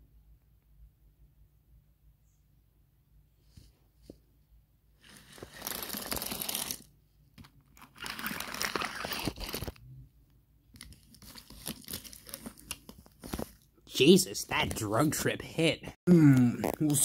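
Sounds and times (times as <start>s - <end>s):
crinkling crunching noise: 7.6s - 9.8s, 10.7s - 13.7s.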